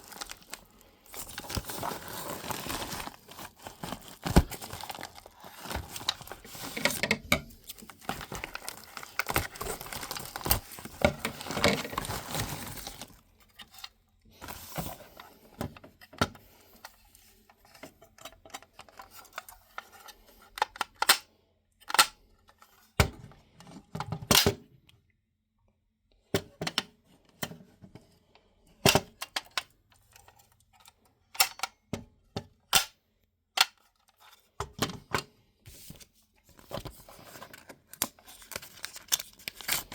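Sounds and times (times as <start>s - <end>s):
packaging crinkling: 0.0s - 13.3s, 36.6s - 39.9s.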